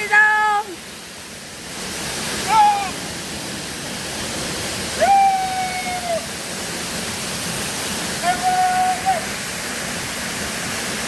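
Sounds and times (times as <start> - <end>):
waterfall rushing: 0.0 - 11.0
person calling out: 2.4 - 3.0, 8.2 - 9.3.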